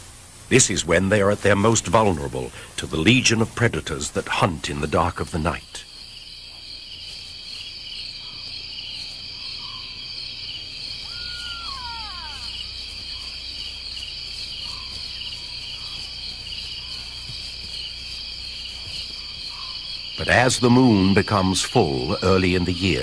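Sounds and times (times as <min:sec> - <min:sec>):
crickets trilling: 0:00.0 - 0:23.0
falling whistled call: 0:11.0 - 0:13.4.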